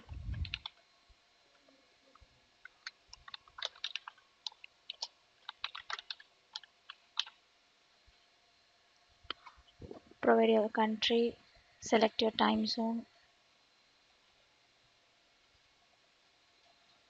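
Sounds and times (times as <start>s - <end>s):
keyboard typing clicks: 0.3s - 0.8s, 2.6s - 7.4s.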